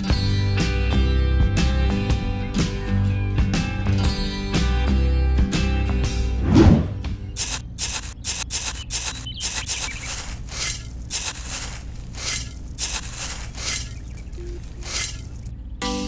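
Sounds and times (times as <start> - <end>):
rough scraping strokes: 6.4 - 15.5.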